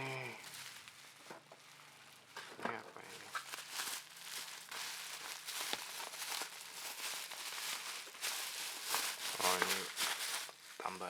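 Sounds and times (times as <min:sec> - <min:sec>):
packaging crinkling and rustling: 0:00.4 - 0:11.0.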